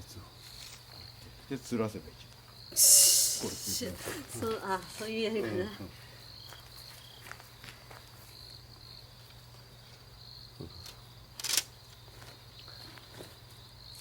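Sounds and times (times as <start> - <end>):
crickets chirping: 0.0 - 14.0
short scrape: 2.8 - 3.8.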